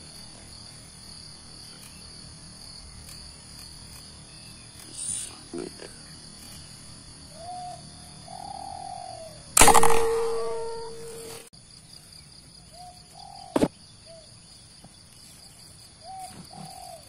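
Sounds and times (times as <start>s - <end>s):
insects droning: 0.0s - 17.0s
loud sudden ringing sound: 9.6s - 11.5s
sharp crack: 9.6s - 11.5s
dove cooing: 16.1s - 17.0s.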